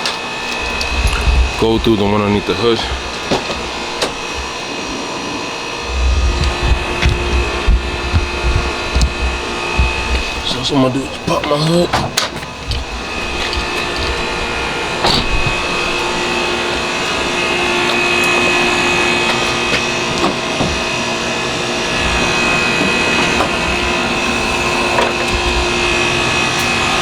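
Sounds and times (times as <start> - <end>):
whirring machine hum: 0.0 - 27.0.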